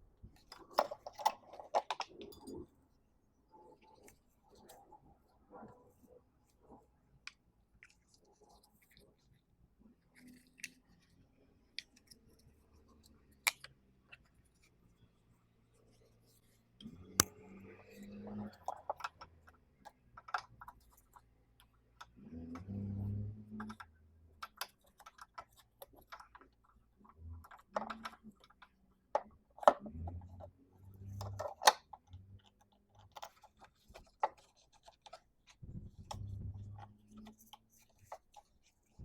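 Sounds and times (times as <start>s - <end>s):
tools and parts clicking and scraping: 0.3s - 2.8s, 16.8s - 39.0s.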